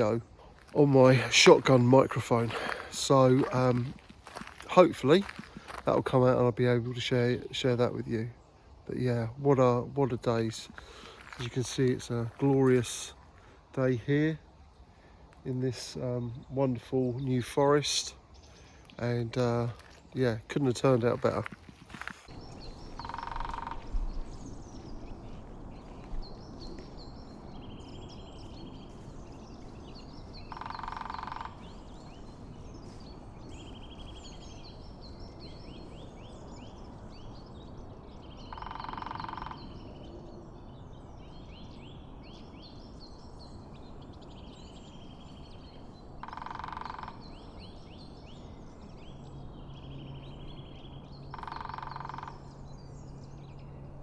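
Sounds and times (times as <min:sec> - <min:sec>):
woodpecker drumming on wood: 0:21.2 - 0:40.1, 0:41.4 - 0:48.3, 0:51.0 - 0:52.8
small songbirds singing: 0:22.2 - 0:54.0.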